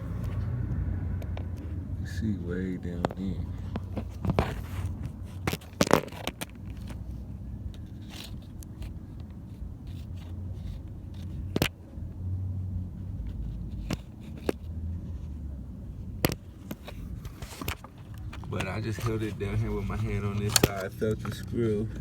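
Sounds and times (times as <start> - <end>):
low rumble of handling noise: 0.0 - 22.0
socket wrench clicks and scrapes: 3.8 - 7.0, 7.7 - 11.8, 13.2 - 14.7, 16.2 - 21.5.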